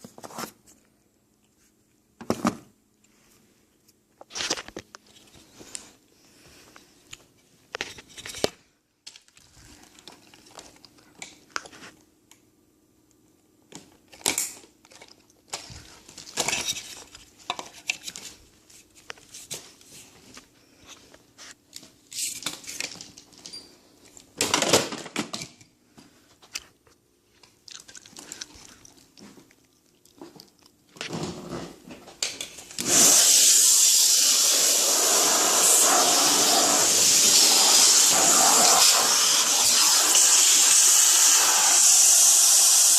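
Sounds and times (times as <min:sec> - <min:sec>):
vacuum cleaner running: 0:32.8 - 0:42.9.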